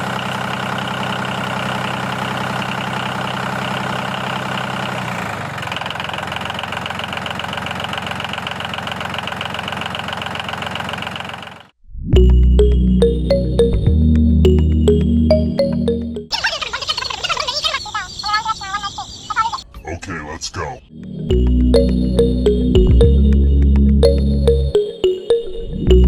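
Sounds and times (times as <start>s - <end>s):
mini tractor engine running: 0.0s - 11.7s
music: 12.2s - 16.3s, 20.9s - 26.0s.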